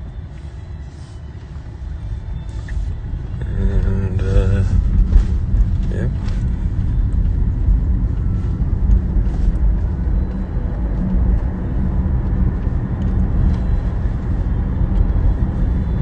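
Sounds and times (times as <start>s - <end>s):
car cabin and road noise: 0.0s - 16.0s.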